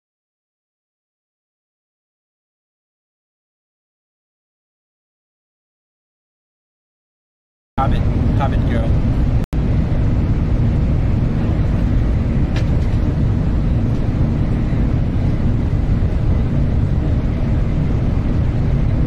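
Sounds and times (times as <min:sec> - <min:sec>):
train rumble inside cabin: 0:07.8 - 0:19.0.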